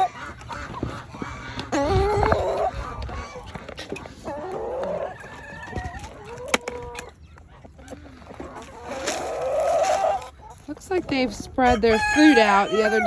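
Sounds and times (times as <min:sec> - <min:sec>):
chicken clucking: 0:00.0 - 0:13.0.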